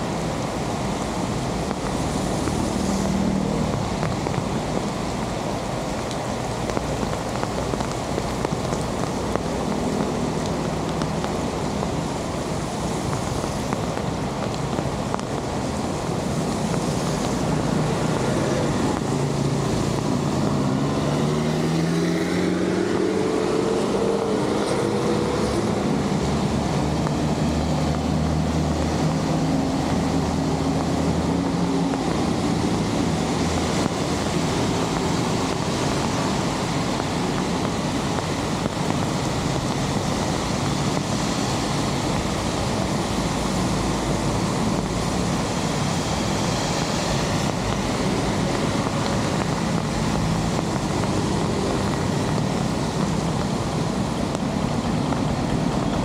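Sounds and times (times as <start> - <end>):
heavy rain on water: 0.0 - 56.0
vehicle engine: 14.6 - 56.0.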